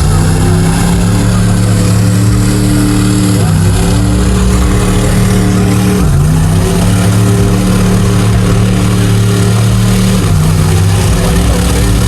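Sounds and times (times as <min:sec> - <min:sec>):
truck engine running under load: 0:00.0 - 0:12.0.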